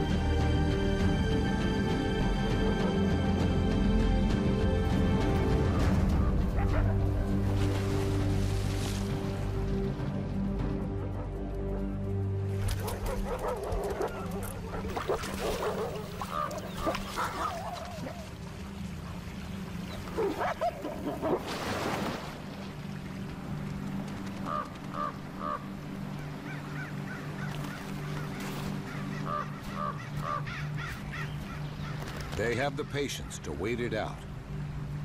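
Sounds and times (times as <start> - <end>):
birds honking: 12.8 - 21.3, 24.0 - 33.7.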